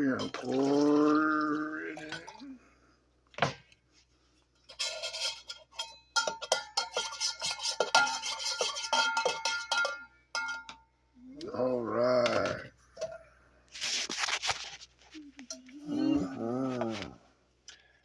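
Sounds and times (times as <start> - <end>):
spoon clinking in a mug: 4.7 - 10.8.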